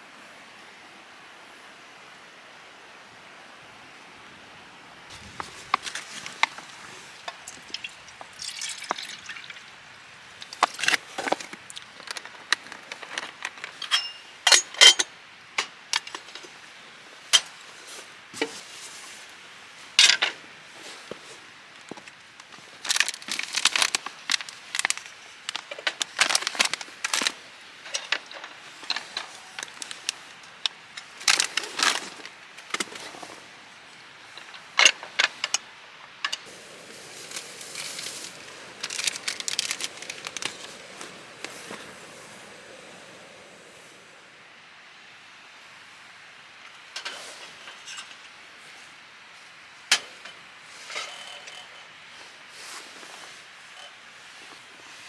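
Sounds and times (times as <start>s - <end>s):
firewood crackling and popping: 5.1s - 17.5s, 21.1s - 33.4s, 34.2s - 44.3s.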